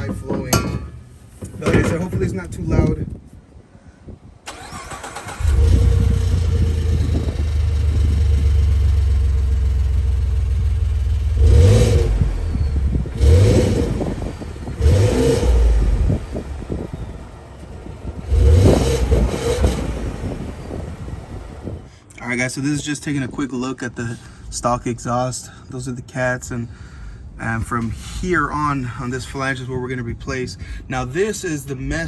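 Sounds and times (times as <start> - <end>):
truck engine starting: 4.4 - 22.2
engine idling and revving: 4.5 - 21.9.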